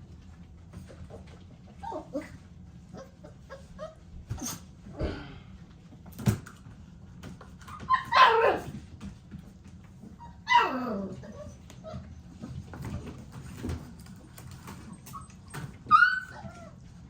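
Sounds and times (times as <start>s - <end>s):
puppy barking: 7.9s - 8.7s.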